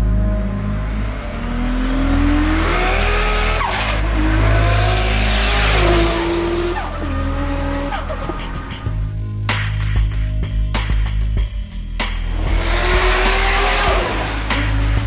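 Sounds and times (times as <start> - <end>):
music: 0.0 - 15.0
car engine accelerating past: 0.4 - 8.2.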